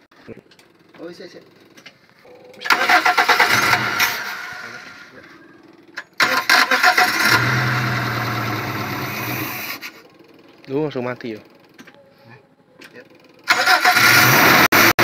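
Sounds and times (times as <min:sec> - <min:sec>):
car engine starting and running: 0:00.5 - 0:11.8, 0:13.1 - 0:15.0.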